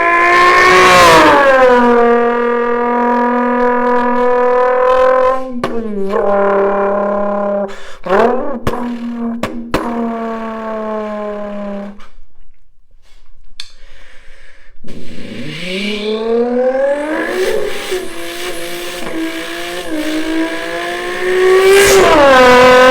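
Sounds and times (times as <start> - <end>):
person imitating car engine: 3.0 - 12.1, 14.9 - 22.9.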